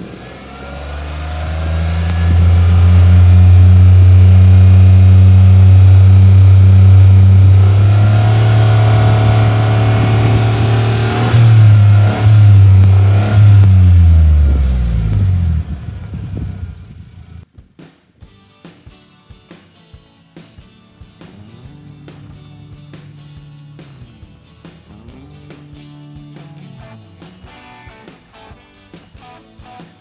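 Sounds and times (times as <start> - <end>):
engine throttle blips: 0.0 - 17.4
van engine exhaust running: 0.0 - 17.4.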